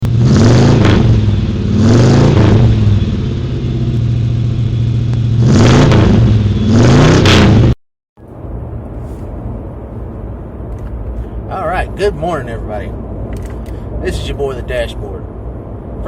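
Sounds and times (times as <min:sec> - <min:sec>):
car engine revving: 0:00.0 - 0:07.8.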